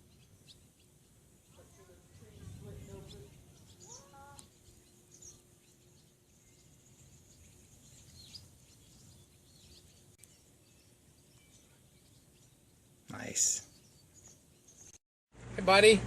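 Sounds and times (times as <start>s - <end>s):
distant bird chirps: 0.0s - 15.0s.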